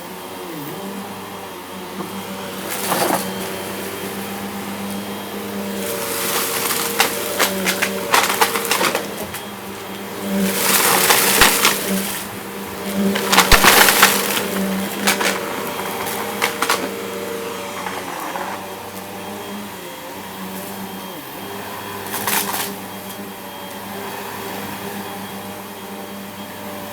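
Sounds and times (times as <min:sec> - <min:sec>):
vacuum cleaner running: 0:00.0 - 0:26.9
debris crackling in vacuum: 0:02.5 - 0:19.1
debris rattling: 0:05.7 - 0:09.5, 0:10.3 - 0:17.1.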